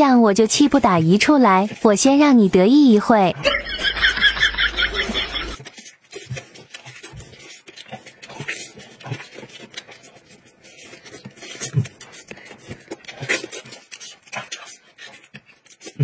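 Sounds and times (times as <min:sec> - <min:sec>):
man chewing food: 0:03.3 - 0:16.0
chicken tearing by hand: 0:03.5 - 0:16.0.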